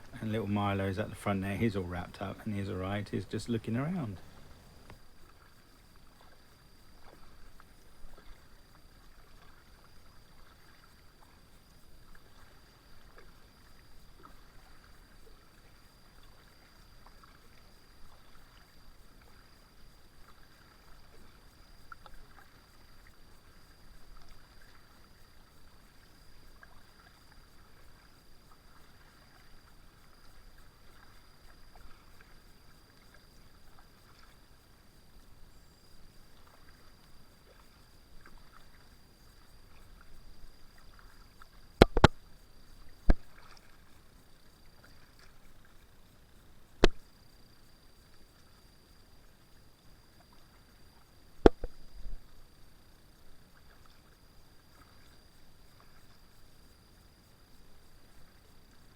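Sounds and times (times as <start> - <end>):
paddle splashing in water: 2.8 - 11.4, 12.0 - 34.5, 36.3 - 44.0, 44.6 - 45.8, 46.8 - 47.1, 50.2 - 52.4.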